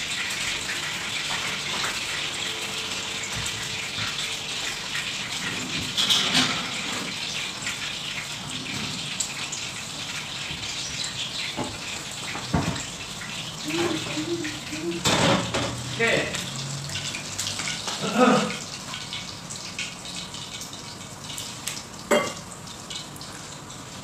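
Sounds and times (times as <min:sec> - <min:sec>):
food sizzling in oil: 0:00.0 - 0:24.0
cookware clattering: 0:05.7 - 0:07.1, 0:22.1 - 0:22.4.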